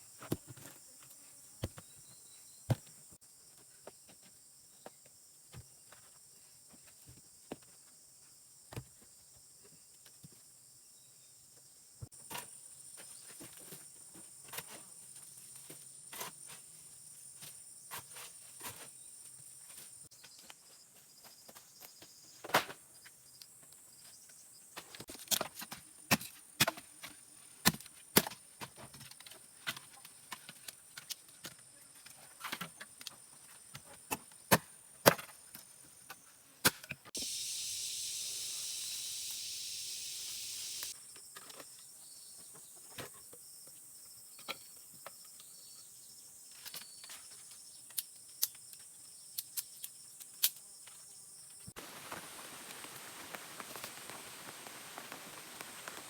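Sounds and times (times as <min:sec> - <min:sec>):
harsh hiss: 0:37.2 - 0:41.0, 0:51.8 - 0:56.0
faint high insect buzz: 0:37.2 - 0:56.0.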